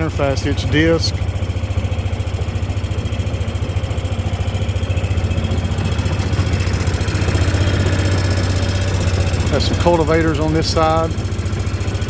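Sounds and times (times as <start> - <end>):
vehicle engine pulsing at low speed: 0.0 - 12.0.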